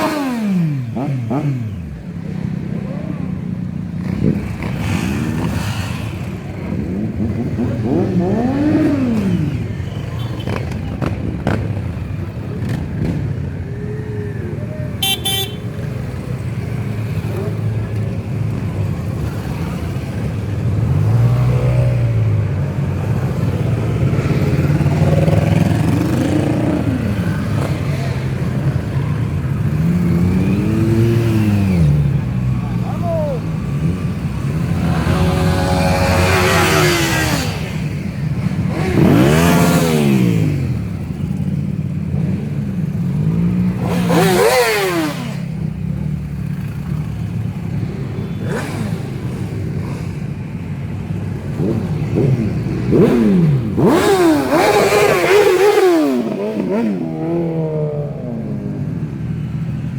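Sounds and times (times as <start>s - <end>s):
motorcycle engines revving: 0.0s - 59.9s
horn toot: 15.0s - 15.9s.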